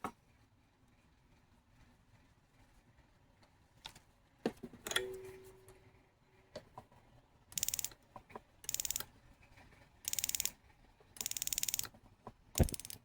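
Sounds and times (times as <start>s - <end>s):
rapid ratcheting clicks: 7.6s - 8.0s, 8.6s - 9.1s, 10.1s - 10.6s, 11.2s - 11.9s, 12.6s - 13.0s.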